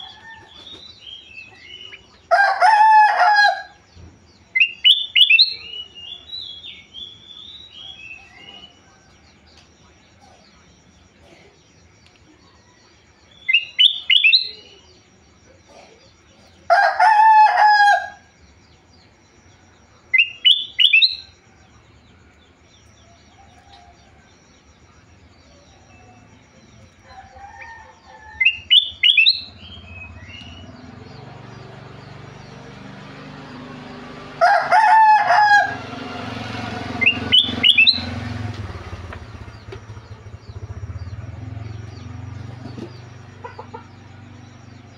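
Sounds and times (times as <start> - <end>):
rooster crowing: 0.0 - 3.9, 7.7 - 9.4, 16.6 - 18.3, 23.1 - 24.4, 26.9 - 42.5
bulbul whistled song: 4.5 - 9.0, 13.3 - 14.9, 20.1 - 21.4, 28.3 - 31.1, 36.9 - 40.7
motor noise: 24.4 - 44.9.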